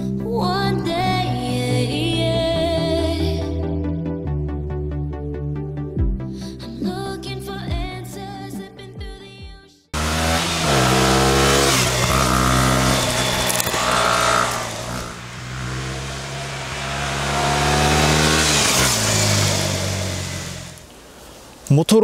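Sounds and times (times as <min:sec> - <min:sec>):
motorcycle engine revving: 0:10.0 - 0:21.0.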